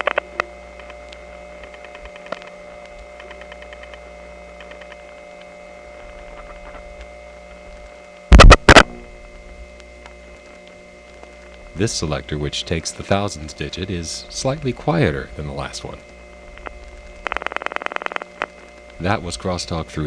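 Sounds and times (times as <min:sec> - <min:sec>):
dial pulse crosstalk ticking: 0:00.0 - 0:19.9
telephone line hum and whine: 0:00.0 - 0:20.0
dial tone: 0:16.6 - 0:18.5.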